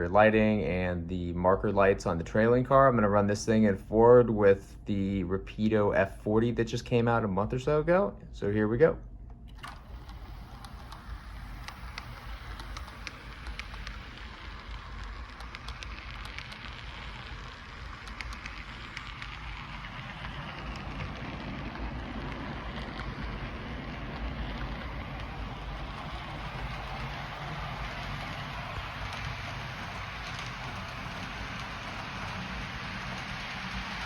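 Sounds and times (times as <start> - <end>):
small clicks: 9.4 - 34.0
model train wheels rolling on rail: 9.5 - 34.0.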